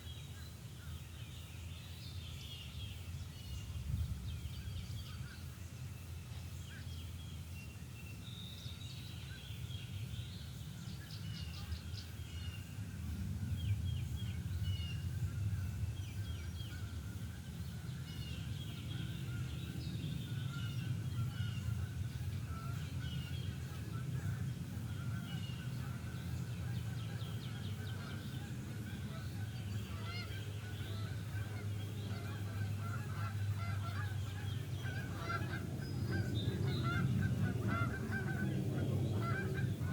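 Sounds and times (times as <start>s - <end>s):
songbirds chirping and trilling: 0.0s - 39.9s
steady low rumble: 10.5s - 39.9s
geese honking: 20.3s - 39.9s.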